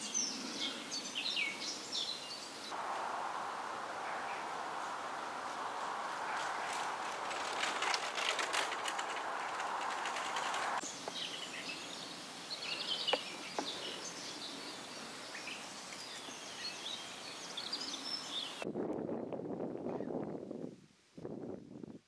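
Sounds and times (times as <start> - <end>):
small birds chirping and singing: 0.0 - 2.8, 4.1 - 18.6
steady outdoor hiss: 0.0 - 22.0
low rushing noise: 2.7 - 10.8.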